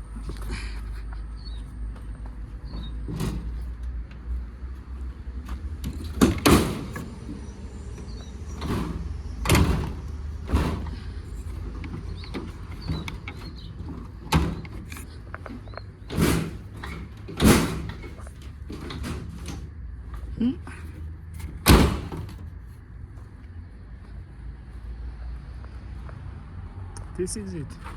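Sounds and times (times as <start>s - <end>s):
low vehicle rumble: 0.0s - 27.9s
door-like bangs and knocks: 5.5s - 7.4s, 8.0s - 15.0s, 15.6s - 19.7s, 21.4s - 22.5s.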